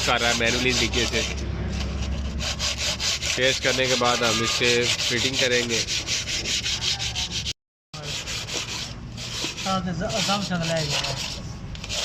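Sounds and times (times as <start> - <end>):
hand sanding metal: 0.0 - 12.0.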